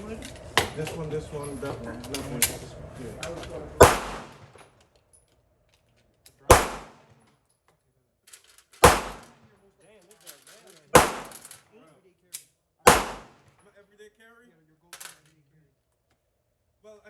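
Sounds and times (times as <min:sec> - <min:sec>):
pistol shots: 0:03.8 - 0:04.5, 0:06.5 - 0:07.1, 0:08.8 - 0:09.4, 0:10.9 - 0:11.5, 0:12.9 - 0:13.5.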